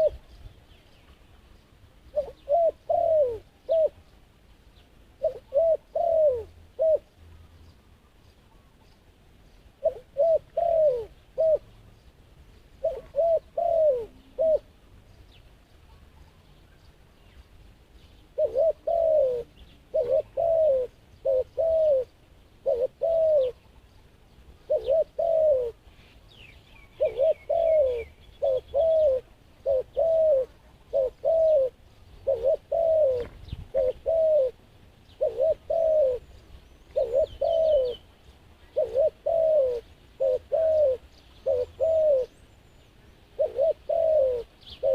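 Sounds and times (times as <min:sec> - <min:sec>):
dove cooing: 0:00.0 - 0:00.3, 0:02.1 - 0:04.2, 0:05.2 - 0:07.2, 0:09.8 - 0:11.8, 0:12.8 - 0:14.8, 0:18.3 - 0:23.9, 0:24.6 - 0:26.0, 0:26.6 - 0:44.9
small bird chirping: 0:00.0 - 0:44.9.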